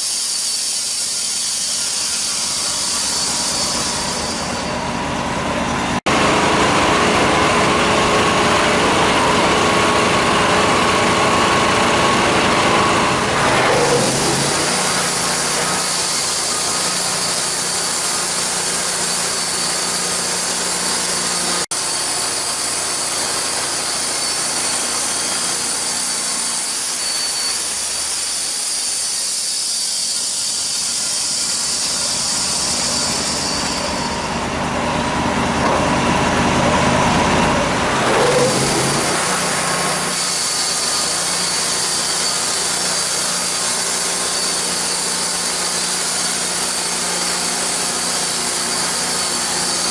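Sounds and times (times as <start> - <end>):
high ringing whine: 0.0 - 35.2
sawmill cutting log: 0.0 - 49.9.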